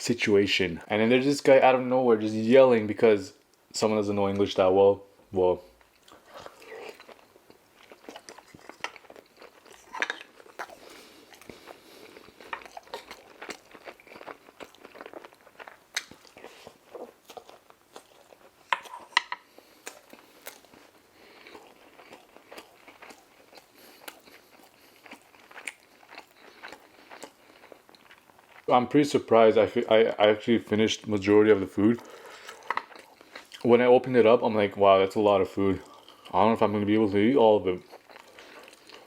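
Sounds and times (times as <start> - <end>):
chewing crispy fried food: 5.7 - 39.0
wet smacking clicks: 15.9 - 16.4.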